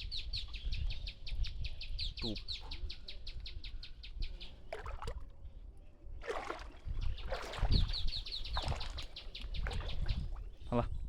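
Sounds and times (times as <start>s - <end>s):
splashing or rustling rushes: 6.2s - 10.5s.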